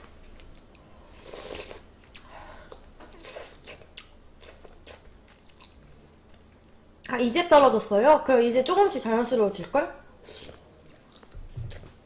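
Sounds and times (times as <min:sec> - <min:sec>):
person chewing food: 0:00.2 - 0:06.5, 0:10.3 - 0:12.0.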